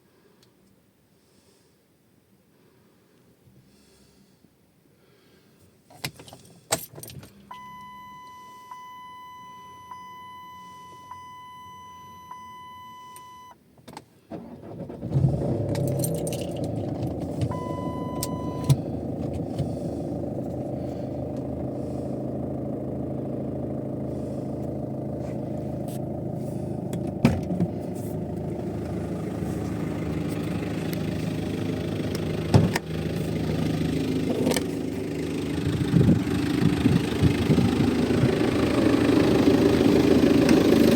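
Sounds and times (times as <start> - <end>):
diesel engine cranking and idling: 5.0 - 40.9
keys jangling: 15.8 - 16.8.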